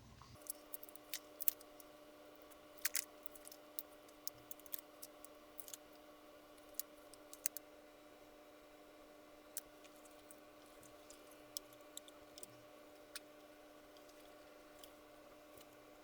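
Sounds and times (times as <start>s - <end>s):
low electrical hum: 0.0s - 16.0s
hands handling small objects: 0.4s - 7.6s.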